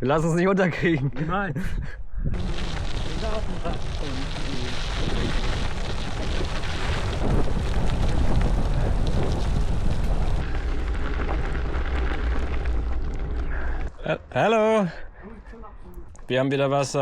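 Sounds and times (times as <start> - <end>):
wind buffeting microphone: 1.4 - 13.9.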